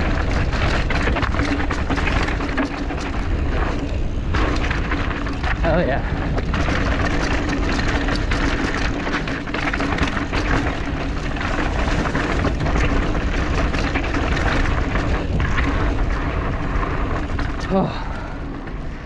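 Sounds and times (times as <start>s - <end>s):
bike rattling over rocks: 0.0s - 19.0s
wind buffeting microphone: 0.0s - 19.0s.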